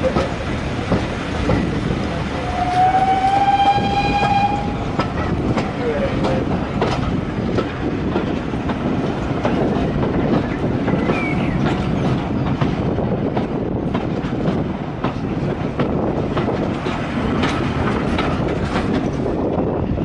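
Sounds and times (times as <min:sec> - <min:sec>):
wheels clicking over rail joints: 0:00.0 - 0:19.8
train carriage rumble: 0:00.0 - 0:20.0.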